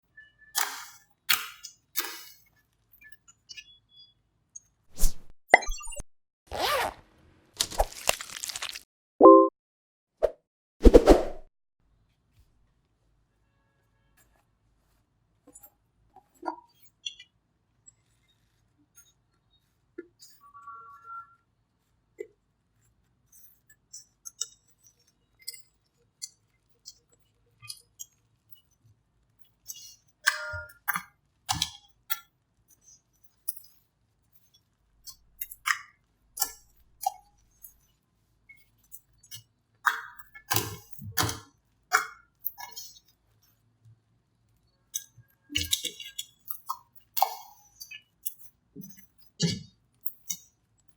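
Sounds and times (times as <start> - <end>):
slime clicking and popping: 7.6 - 8.8.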